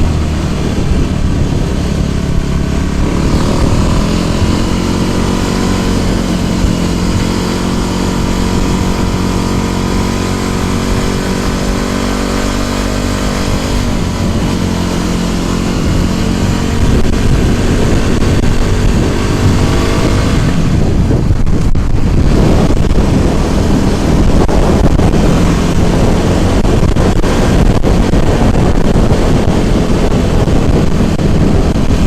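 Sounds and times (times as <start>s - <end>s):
scooter motor running: 0.0s - 32.0s
wind on microphone: 0.0s - 32.0s.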